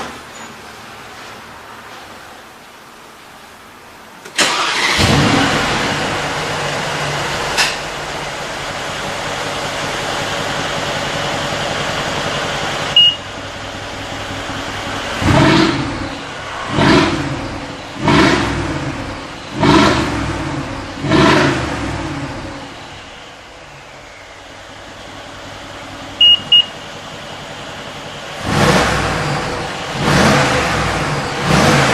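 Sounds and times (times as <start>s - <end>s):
car engine revving: 4.4s - 31.9s
brief high beep: 13.0s - 13.2s, 26.2s - 26.7s.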